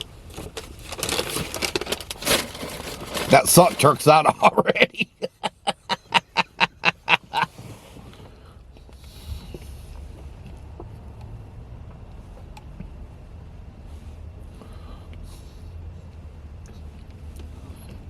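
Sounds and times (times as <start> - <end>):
car driving rumble from inside: 6.6 - 18.0.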